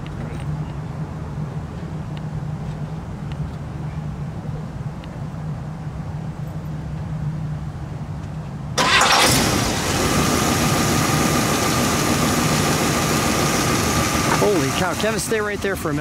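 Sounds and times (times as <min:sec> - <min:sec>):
car engine starting and idling: 0:08.8 - 0:16.0.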